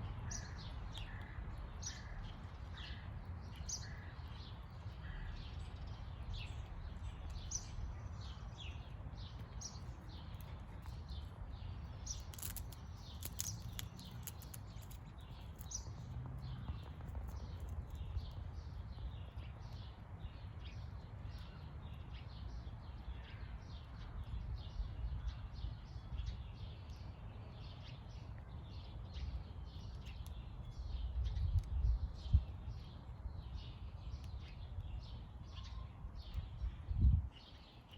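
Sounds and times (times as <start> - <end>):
small birds chirping: 0.0 - 37.9
sharp clicks: 12.1 - 15.8.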